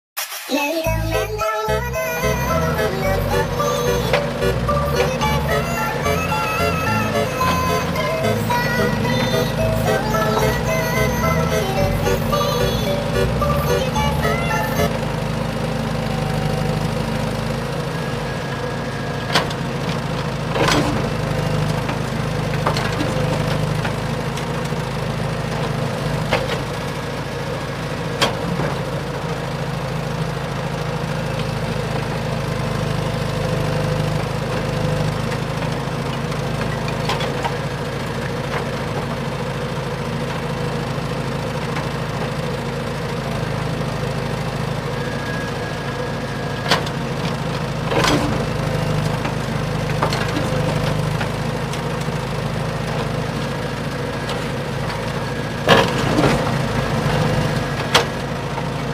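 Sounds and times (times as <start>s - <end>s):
model excavator motors humming: 1.8s - 58.9s.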